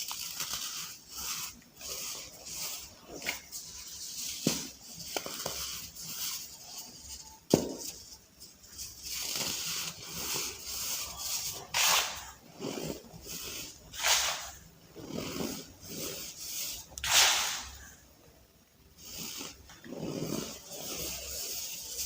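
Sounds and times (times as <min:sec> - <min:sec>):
sharp crack: 0:17.0 - 0:17.9.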